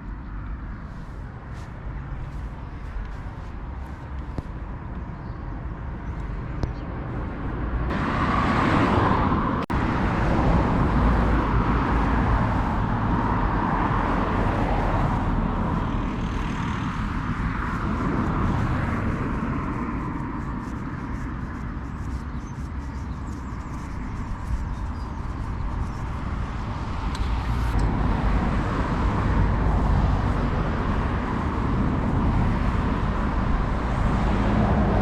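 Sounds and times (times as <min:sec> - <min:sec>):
vehicle passing by: 0:06.4 - 0:22.2, 0:23.2 - 0:35.0.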